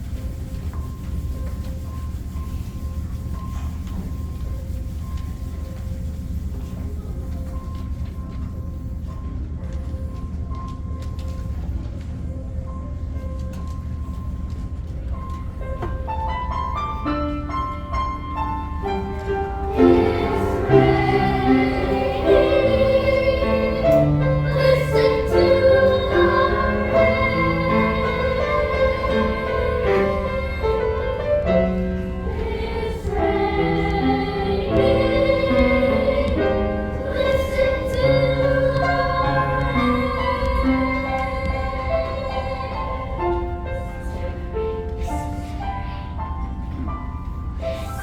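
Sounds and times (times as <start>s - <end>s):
musical accompaniment: 13.2s - 45.6s
children's chorus singing: 17.0s - 46.2s.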